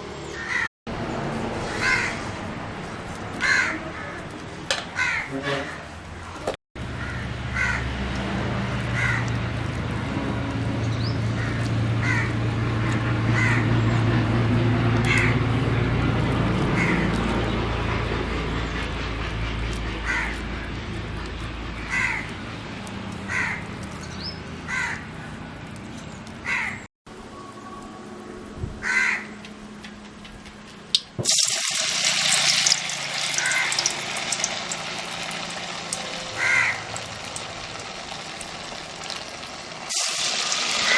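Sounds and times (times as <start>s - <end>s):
crows cawing: 0.4s - 0.7s, 1.7s - 2.3s, 3.4s - 4.2s, 4.9s - 5.9s, 6.8s - 8.0s, 8.8s - 9.4s, 11.4s - 13.9s, 15.0s - 15.4s, 16.7s - 17.2s, 20.0s - 20.7s, 21.8s - 22.4s, 23.3s - 23.8s, 24.7s - 25.4s, 26.4s - 26.9s, 28.8s - 29.5s, 33.3s - 34.2s, 35.8s - 37.5s
loud hissing rush: 33.4s - 40.9s.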